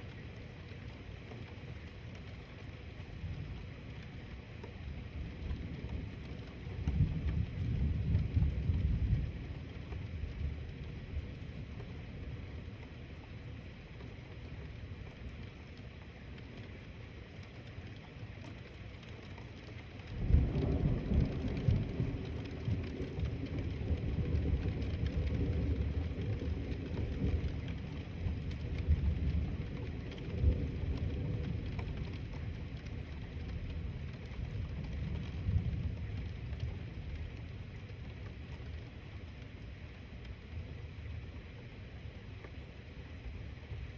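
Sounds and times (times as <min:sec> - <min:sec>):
steady rain: 0:00.0 - 0:43.9
thunder rumble: 0:05.1 - 0:12.6, 0:20.0 - 0:38.9.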